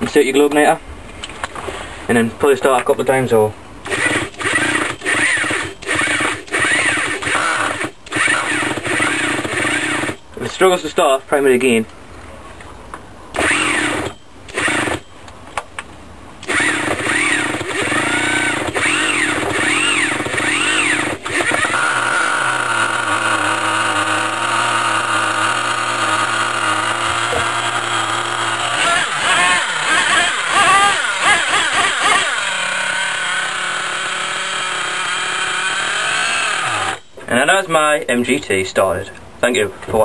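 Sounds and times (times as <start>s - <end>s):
small engine buzzing: 3.8s - 10.2s, 13.4s - 15.1s, 16.4s - 37.2s
engine cranking: 3.8s - 10.3s, 13.4s - 15.1s, 16.4s - 37.2s.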